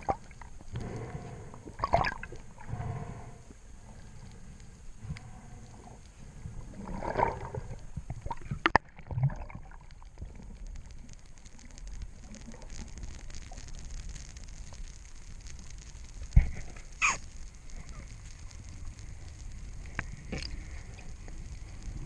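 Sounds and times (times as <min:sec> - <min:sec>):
water sloshing and gurgling: 0:00.0 - 0:11.2, 0:19.6 - 0:22.0.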